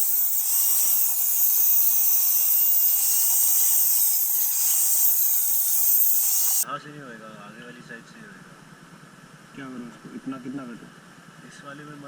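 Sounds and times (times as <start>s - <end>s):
angle grinder cutting steel: 0.0s - 6.6s.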